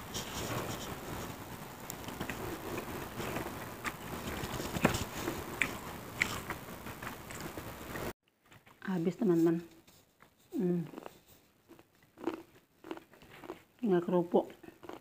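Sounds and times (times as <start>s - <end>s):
chewing with crunches: 1.9s - 8.8s, 10.2s - 13.8s, 14.5s - 15.0s.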